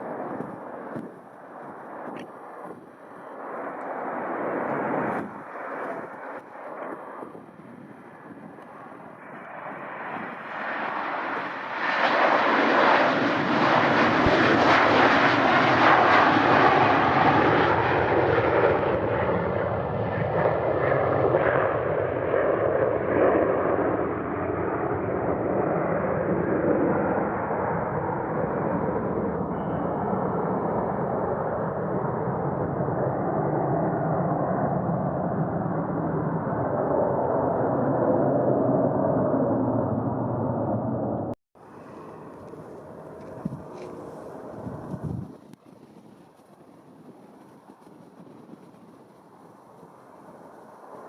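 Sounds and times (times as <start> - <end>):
wind buffeting microphone: 0.0 - 3.6, 4.2 - 11.5, 28.0 - 51.0
airliner engines roaring: 0.0 - 51.0.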